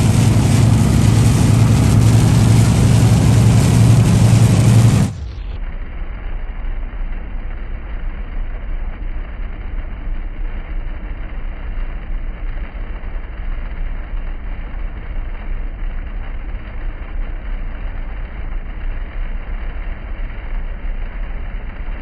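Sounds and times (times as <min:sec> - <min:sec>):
hail falling: 0:00.0 - 0:05.2.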